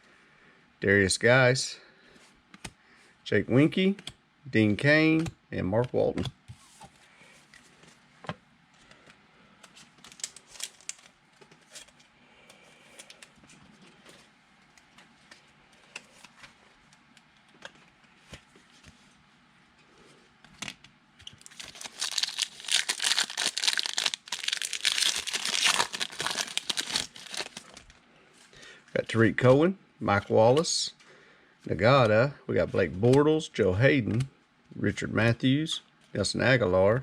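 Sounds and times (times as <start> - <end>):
foil wrapper tearing and crinkling: 10.0 - 11.1, 21.4 - 28.0.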